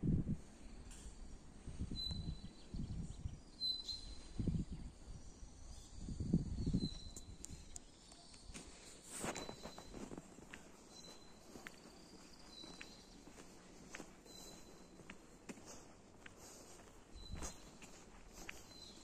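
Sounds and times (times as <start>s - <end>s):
thin high chirp: 1.2s - 10.2s
footsteps walking: 8.4s - 19.0s.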